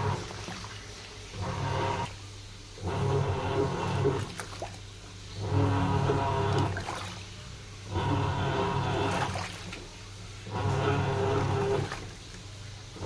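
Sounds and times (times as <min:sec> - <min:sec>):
washing machine motor humming: 0:00.0 - 0:13.0
water sloshing in tub: 0:00.0 - 0:13.0.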